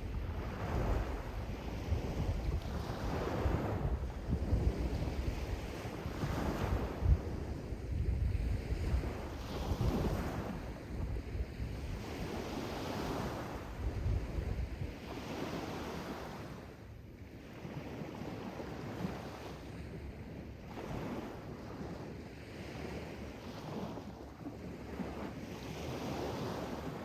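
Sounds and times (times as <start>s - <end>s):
wind rumbling on microphone: 0.0s - 16.6s.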